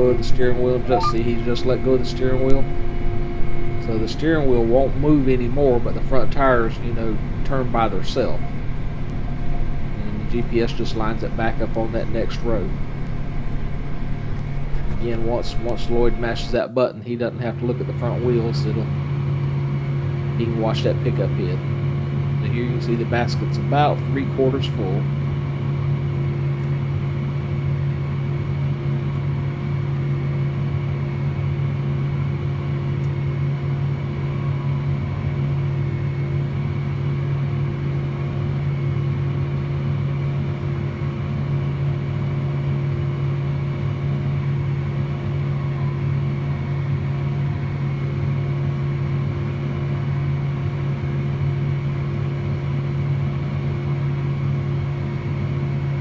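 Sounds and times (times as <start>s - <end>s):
faint high whine: 0.0s - 16.7s
tractor diesel engine drone: 0.0s - 56.0s.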